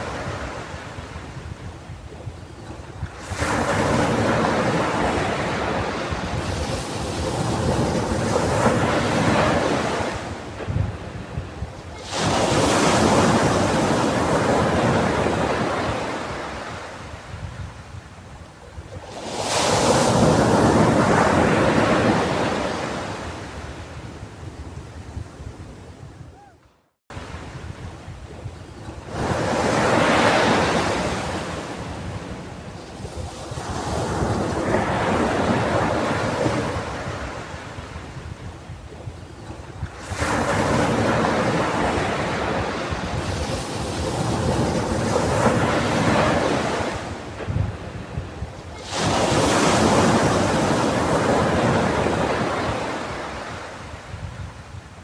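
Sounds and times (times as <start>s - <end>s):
wind rumbling on microphone: 0.0s - 55.0s
ocean wave breaking on beach: 11.9s - 17.1s, 29.1s - 38.0s, 40.0s - 54.0s.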